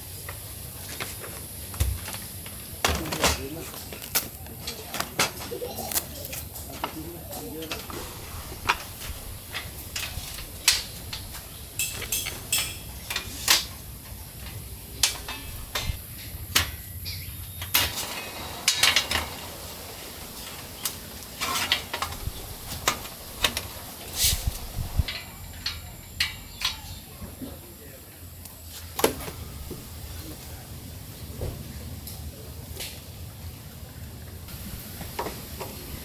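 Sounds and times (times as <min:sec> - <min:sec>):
dishes and utensils clinking: 0:04.6 - 0:16.0.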